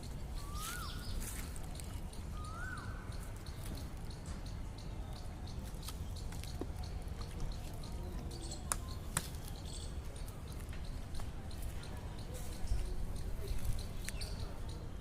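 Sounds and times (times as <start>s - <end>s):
low background noise: 0.0s - 15.0s.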